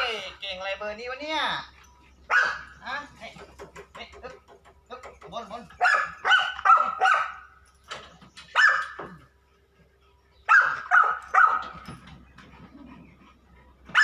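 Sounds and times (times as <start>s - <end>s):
dog barking: 2.3s - 2.8s, 5.8s - 7.5s, 8.6s - 9.1s, 10.5s - 11.8s.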